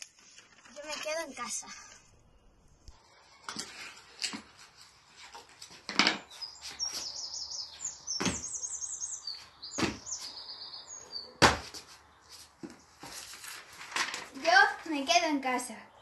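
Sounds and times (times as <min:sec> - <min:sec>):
songbird chirping: 0:06.1 - 0:13.1, 0:14.4 - 0:16.0
sneakers thumping on tiled floor: 0:08.1 - 0:08.6, 0:09.7 - 0:10.4, 0:11.4 - 0:11.9.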